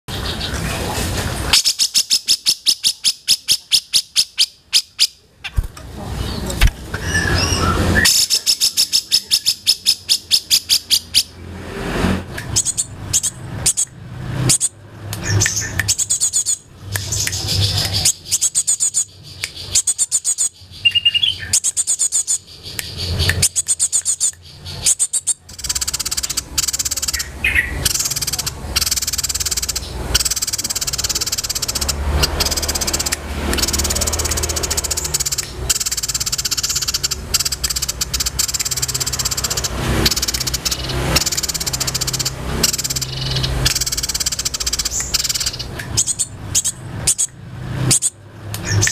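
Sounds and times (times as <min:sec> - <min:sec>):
songbirds chirping and twittering: 0:00.1 - 0:48.9
bird whistled phrases: 0:07.0 - 0:11.3.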